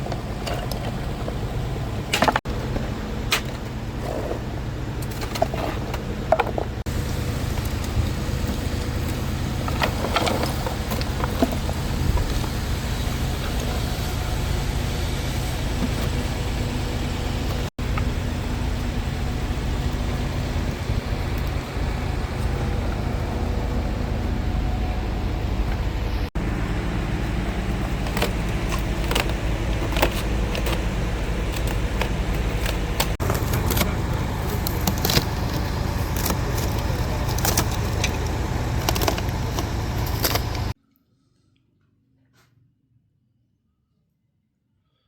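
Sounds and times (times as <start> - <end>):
motor running with low hum: 0.0 - 40.8
sharp clicks and rattles: 25.7 - 40.8.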